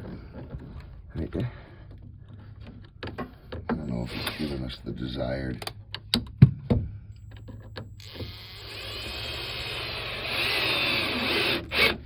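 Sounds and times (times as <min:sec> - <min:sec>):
cordless drill driving screw: 0:04.1 - 0:04.5, 0:08.0 - 0:12.0.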